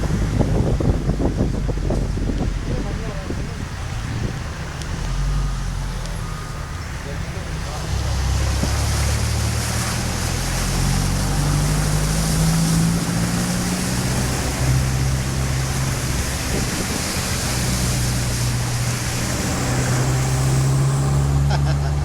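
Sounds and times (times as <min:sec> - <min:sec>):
heavy rain pouring: 0:00.0 - 0:22.0
low engine hum: 0:00.0 - 0:22.0.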